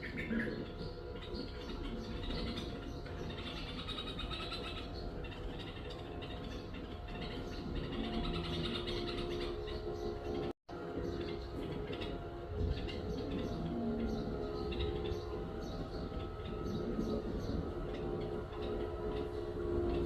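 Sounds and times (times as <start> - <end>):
small birds chirping: 0.0 - 20.0
steady low hum: 0.0 - 20.0.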